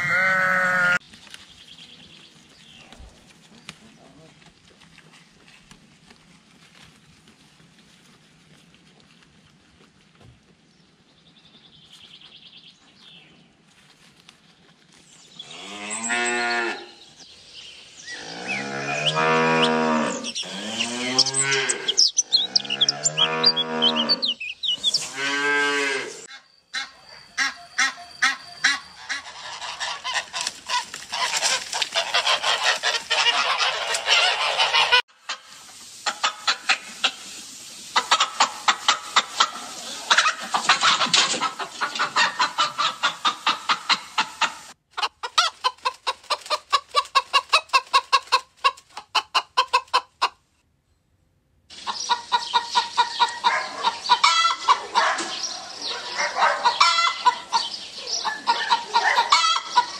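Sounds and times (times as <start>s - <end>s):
cow mooing: 18.1s - 24.2s, 25.1s - 26.2s
chickens clucking: 18.2s - 50.4s, 51.7s - 59.9s
flock of fowl clamouring: 25.0s - 37.3s, 37.9s - 44.7s, 51.9s - 59.9s.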